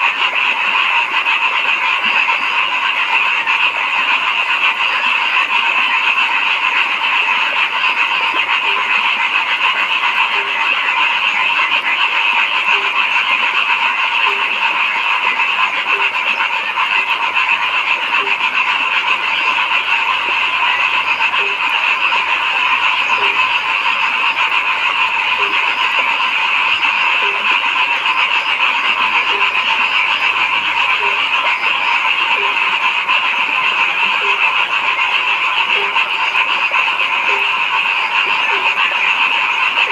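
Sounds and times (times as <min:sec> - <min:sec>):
frogs calling in chorus: 0:00.0 - 0:39.9.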